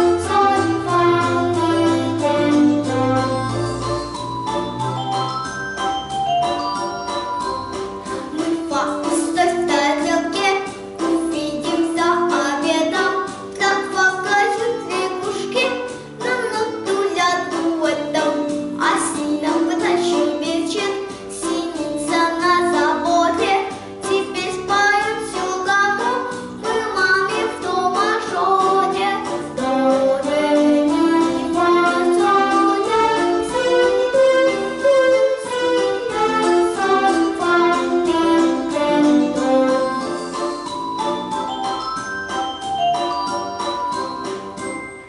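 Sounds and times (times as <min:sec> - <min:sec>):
instrumental accompaniment: 0:00.0 - 0:45.0
girl singing: 0:08.2 - 0:38.4.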